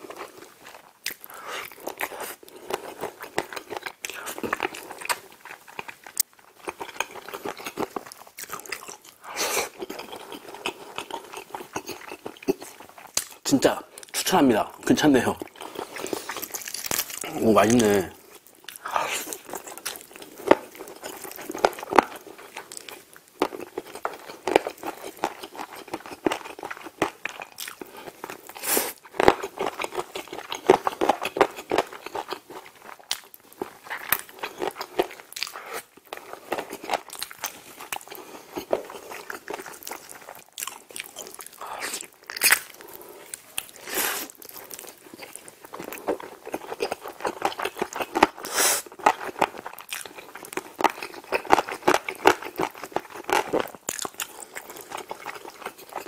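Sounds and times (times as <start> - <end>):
biting and chewing meat: 0.0 - 14.2, 15.4 - 56.0
mouth clicks and smacks: 5.8 - 14.2.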